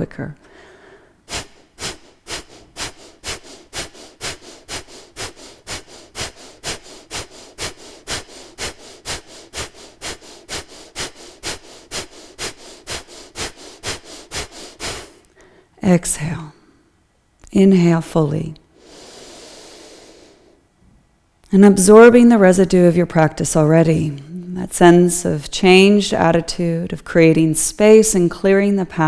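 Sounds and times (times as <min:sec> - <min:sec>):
sharp breaths through the nose: 0:00.4 - 0:15.8, 0:18.7 - 0:20.6.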